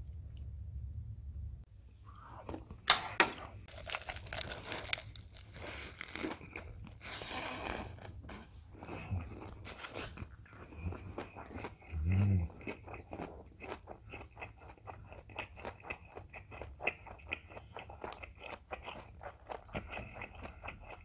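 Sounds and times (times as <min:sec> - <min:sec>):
low hum: 0:00.0 - 0:03.7
lettuce crunching: 0:03.6 - 0:21.0
wet chewing: 0:03.6 - 0:21.0.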